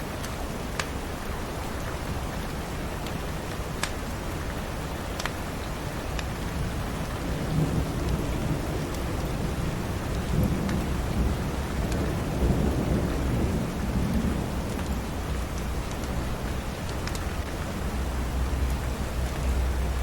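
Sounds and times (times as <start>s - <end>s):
rain falling: 0.0s - 20.0s
thunder rumbling: 6.6s - 20.0s.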